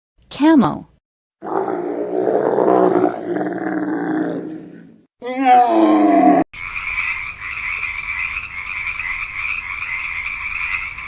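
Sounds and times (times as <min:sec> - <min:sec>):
camel groaning: 0:01.4 - 0:06.5.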